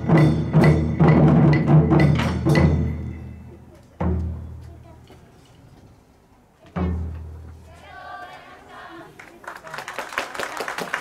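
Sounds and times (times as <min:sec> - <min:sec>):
applause: 0:09.1 - 0:11.0.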